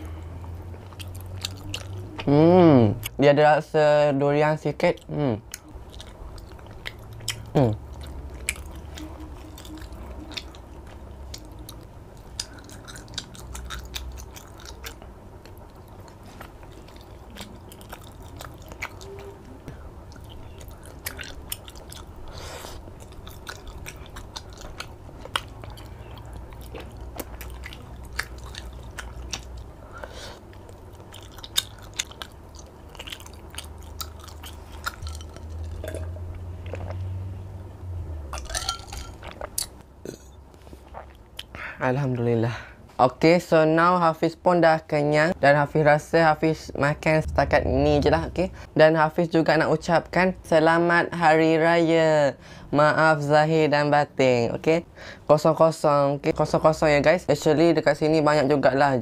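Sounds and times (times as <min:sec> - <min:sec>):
close-miked chewing: 0:00.0 - 0:02.3, 0:04.8 - 0:37.0.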